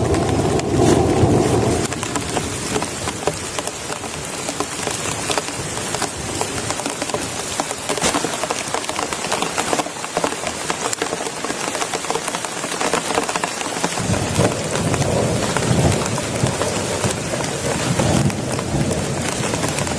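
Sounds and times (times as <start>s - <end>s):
rolling thunder rumble: 0.0s - 3.6s, 14.0s - 19.9s
heavy rain pattering: 0.0s - 19.9s.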